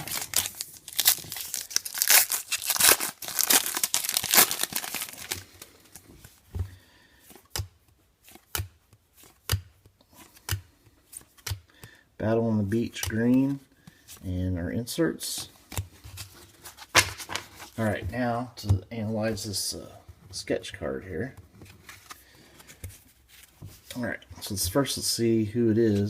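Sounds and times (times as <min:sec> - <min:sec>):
foil wrapper crinkling and tearing: 0:00.0 - 0:05.7
cards tapping and flicking: 0:07.3 - 0:12.0.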